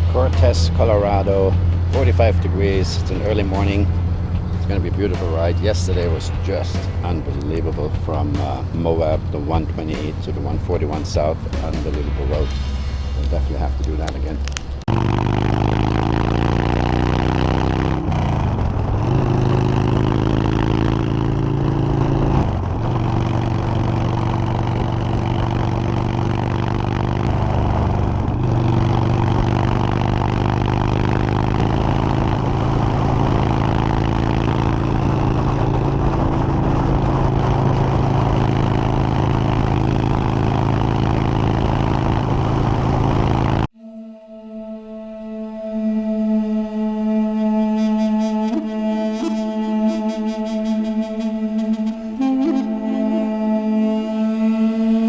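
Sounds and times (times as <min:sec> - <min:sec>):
motorcycle engine shifting gears: 0:00.0 - 0:43.7.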